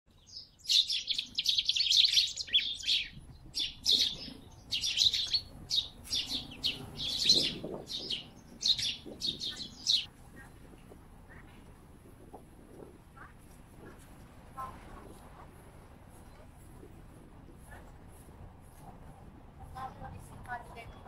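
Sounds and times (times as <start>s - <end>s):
small birds chirping: 0.1s - 10.5s.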